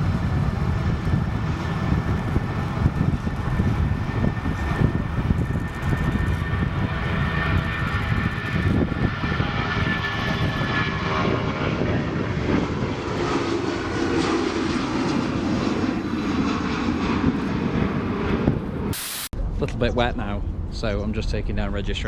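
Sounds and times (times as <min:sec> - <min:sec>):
jet engine roar: 0:00.0 - 0:19.3
high engine whine: 0:00.0 - 0:19.7.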